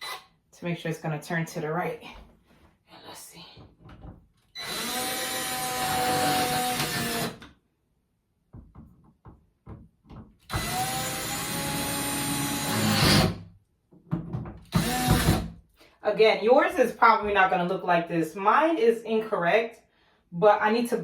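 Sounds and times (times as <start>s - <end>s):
power drill whining: 0.0s - 0.2s, 4.6s - 7.4s, 10.5s - 13.4s, 14.7s - 15.4s.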